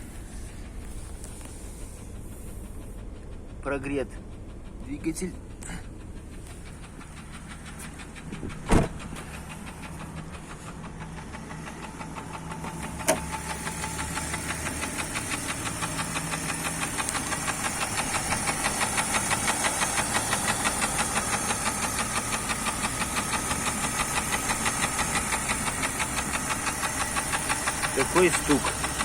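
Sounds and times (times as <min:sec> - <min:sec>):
car engine idling with knock: 0:00.0 - 0:29.0
heavy thump: 0:08.2 - 0:09.4.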